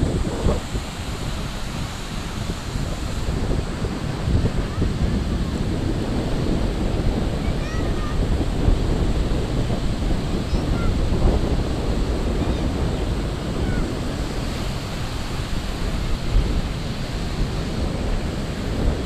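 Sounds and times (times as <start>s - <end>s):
ocean waves washing onto beach: 0.0s - 19.0s
wind buffeting microphone: 0.0s - 19.0s.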